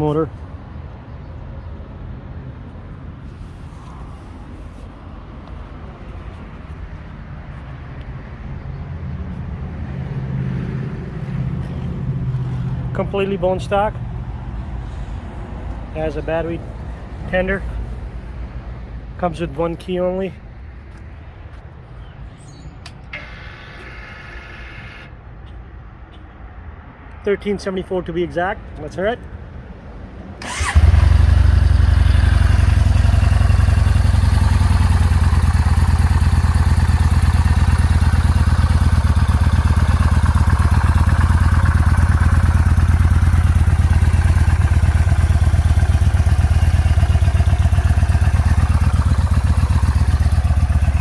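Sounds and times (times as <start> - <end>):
fuel pump whirring: 23.1 - 25.1, 30.4 - 51.0
motorcycle engine idling: 30.4 - 51.0.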